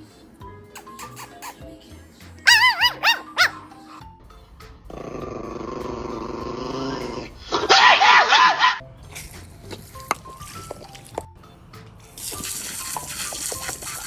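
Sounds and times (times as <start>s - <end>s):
faint background music: 0.0s - 14.0s
dog yelping: 2.5s - 4.0s, 7.5s - 8.8s
dog growling: 4.9s - 7.8s.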